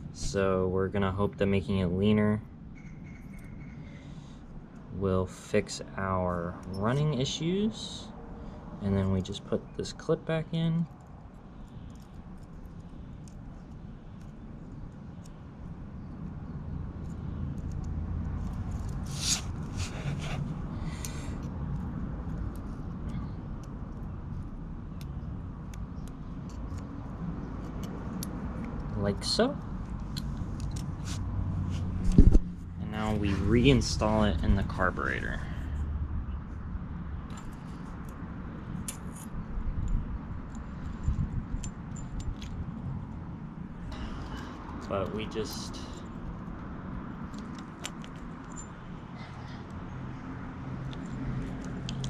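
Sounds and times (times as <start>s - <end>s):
small metal clicks: 10.8s - 15.5s, 17.0s - 19.1s, 20.8s - 29.0s, 29.6s - 31.0s, 38.8s - 43.2s, 44.2s - 49.9s, 50.8s - 52.0s.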